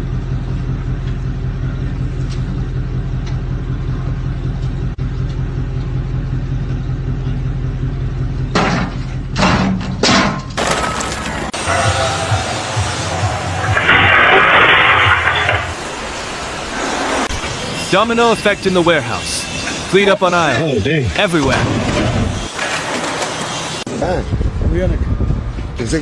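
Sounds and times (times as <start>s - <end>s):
engine running: 0.0s - 10.0s, 10.6s - 26.0s
loud crashes: 10.6s - 17.8s.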